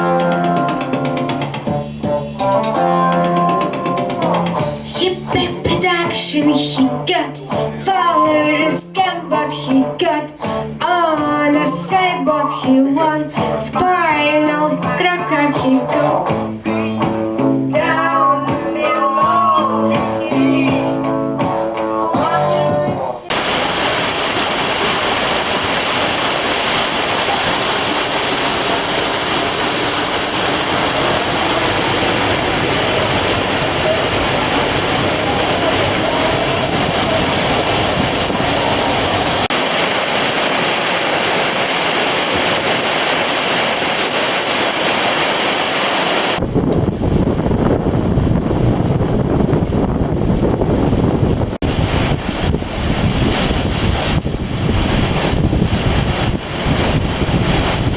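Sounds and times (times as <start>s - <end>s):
sea surf: 17.8s - 21.0s, 23.2s - 57.9s
wind buffeting on microphone: 23.3s - 39.6s, 46.2s - 57.9s
wind: 23.3s - 57.9s.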